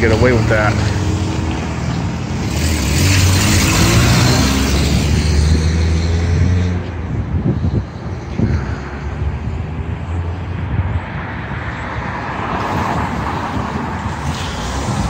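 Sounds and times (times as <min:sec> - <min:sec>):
rushing noise: 0:07.1 - 0:15.0.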